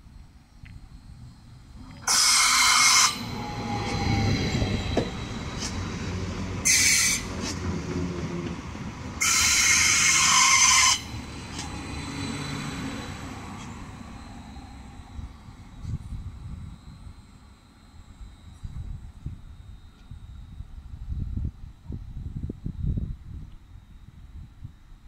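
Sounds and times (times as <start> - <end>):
train wheels rumbling on track: 1.7 - 16.7.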